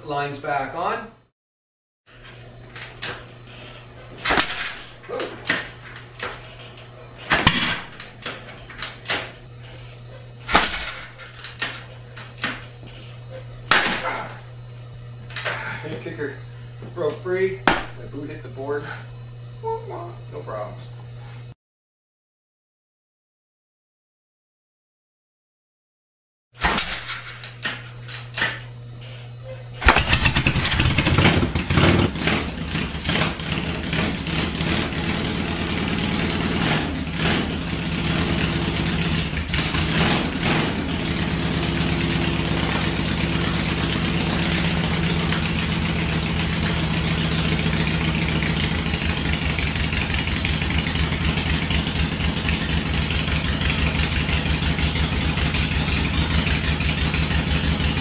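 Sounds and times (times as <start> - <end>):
motorcycle engine revving and idling: 29.7 - 58.0
motorcycle engine kick-started: 29.8 - 58.0.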